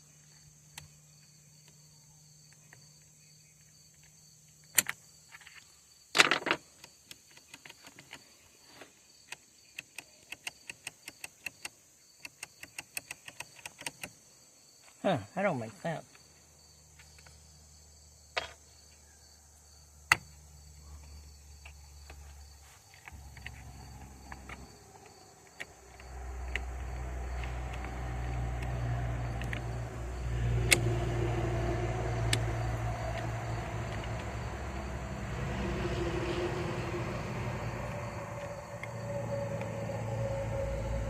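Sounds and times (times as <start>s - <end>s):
low motor hum: 20.7s - 41.0s.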